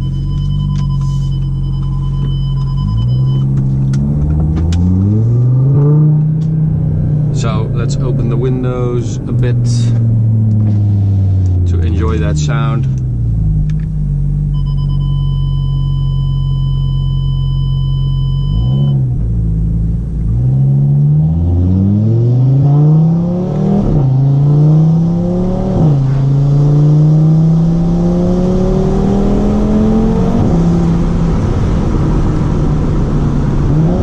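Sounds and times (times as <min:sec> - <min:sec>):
car engine accelerating through gears: 0:00.0 - 0:15.9, 0:18.2 - 0:34.0.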